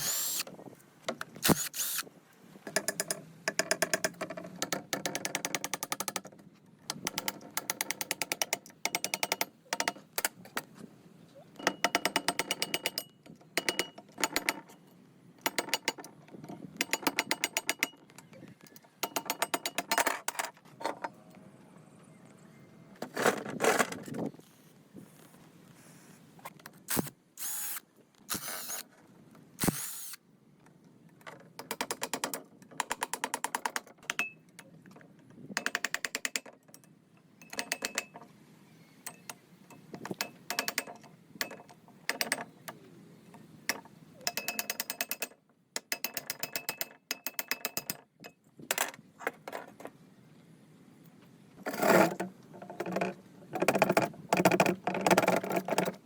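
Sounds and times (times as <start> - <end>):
metal parts knocking: 16.8 - 18.3
ratchet wrench clicking: 29.6 - 30.2.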